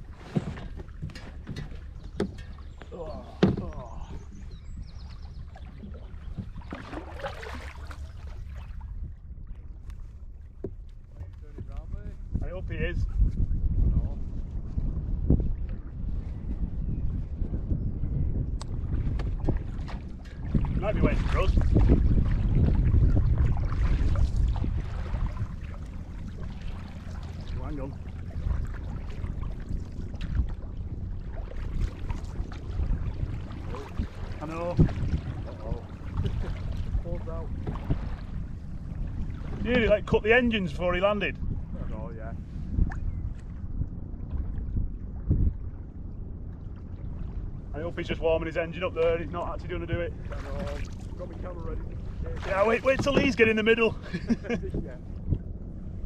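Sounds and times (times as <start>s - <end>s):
canoe paddles splashing in water: 0.0s - 11.8s, 18.7s - 56.0s
steady low rumble: 0.0s - 56.0s
wind buffeting microphone: 0.0s - 56.0s.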